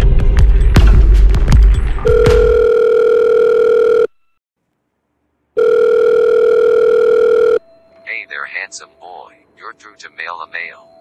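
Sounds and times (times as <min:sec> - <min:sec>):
electronic telephone tone: 0:02.1 - 0:04.2, 0:05.6 - 0:07.6.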